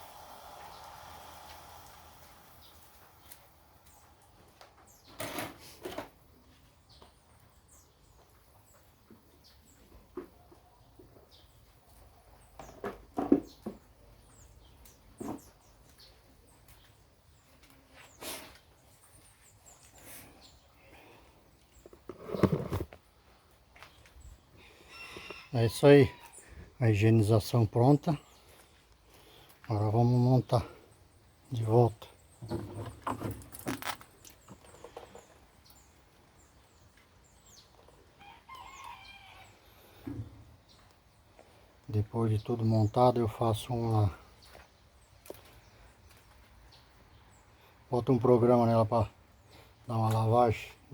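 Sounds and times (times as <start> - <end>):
small birds chirping: 0.6 - 5.2, 6.3 - 50.9
chicken drawn-out call: 24.6 - 26.6, 38.2 - 39.7.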